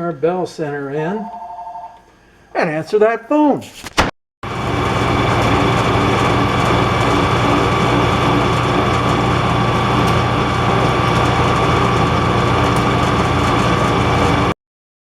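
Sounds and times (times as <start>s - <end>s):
metal lathe whining and humming: 4.5s - 14.5s.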